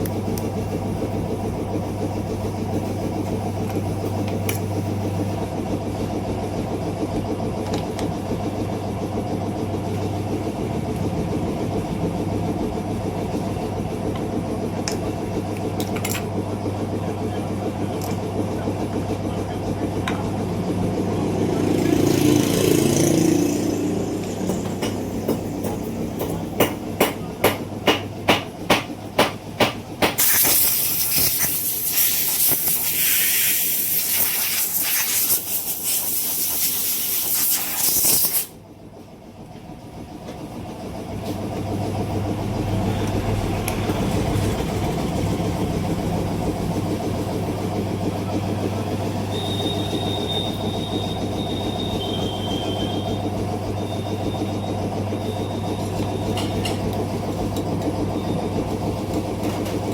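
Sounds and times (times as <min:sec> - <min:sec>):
short high beeps: 0:49.3 - 0:53.2.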